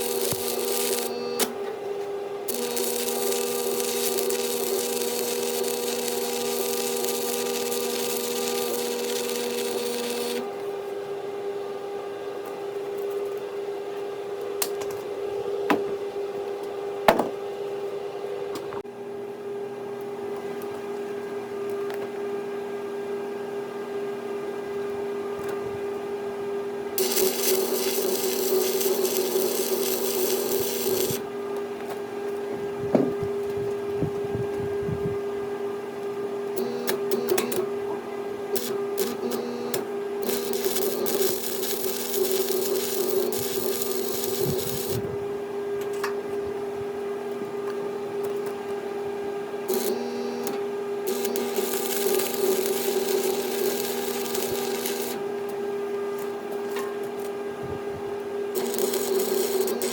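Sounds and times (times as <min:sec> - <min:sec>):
welding arc sizzling: 0:00.0 - 0:01.5, 0:02.5 - 0:10.5, 0:27.0 - 0:31.3, 0:36.6 - 0:37.6, 0:38.5 - 0:45.1, 0:49.7 - 0:55.2, 0:58.5 - 0:59.9
machine hum: 0:00.0 - 0:10.6, 0:26.9 - 0:35.5, 0:36.4 - 0:45.7, 0:49.2 - 0:55.5, 0:57.6 - 0:59.9.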